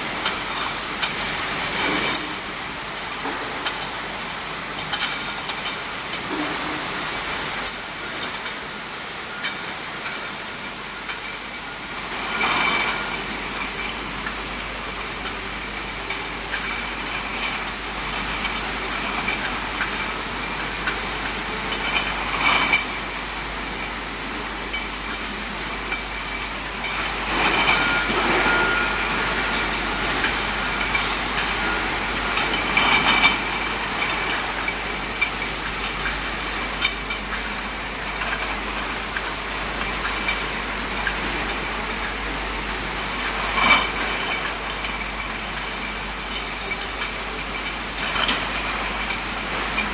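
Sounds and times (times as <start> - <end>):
bottling machinery running: 0.0 - 49.9
faint machine whine: 10.6 - 49.9.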